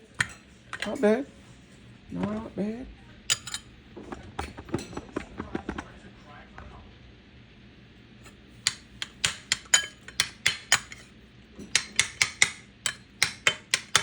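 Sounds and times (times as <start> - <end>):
metal spoon clinking against bowl: 0.2 - 1.1, 3.3 - 3.7, 8.7 - 14.0.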